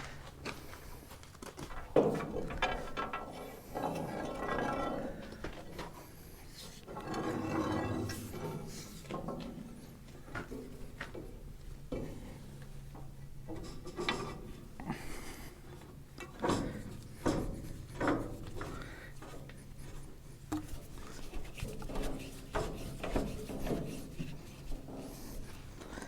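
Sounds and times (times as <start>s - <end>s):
metal parts and tools scraping: 1.7s - 10.0s.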